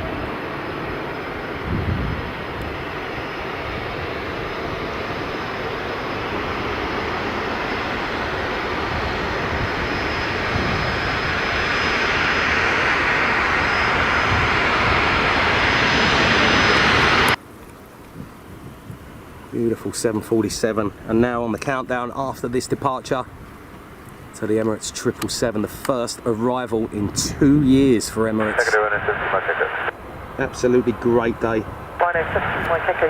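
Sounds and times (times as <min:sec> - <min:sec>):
high engine whine: 0:00.0 - 0:17.4, 0:27.0 - 0:33.0
jet engines roaring: 0:00.0 - 0:17.4, 0:22.4 - 0:33.0.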